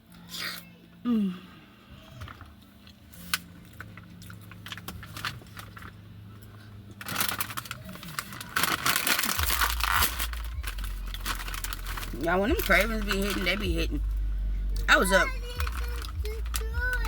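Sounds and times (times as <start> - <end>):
plastic snack bag crinkling: 3.0 - 17.0
low rumble: 3.8 - 17.0.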